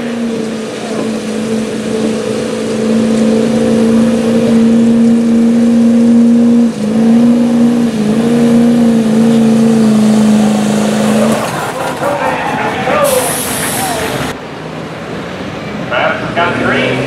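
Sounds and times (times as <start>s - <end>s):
truck engine at high revs: 0.0s - 17.0s.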